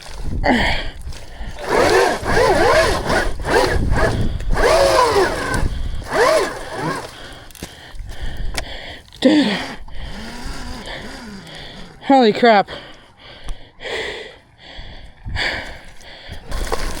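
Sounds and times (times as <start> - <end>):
wheel churning in mud: 0.0 - 7.6, 9.4 - 12.5, 16.4 - 17.0
electric motor whining: 1.6 - 7.2, 9.5 - 12.1.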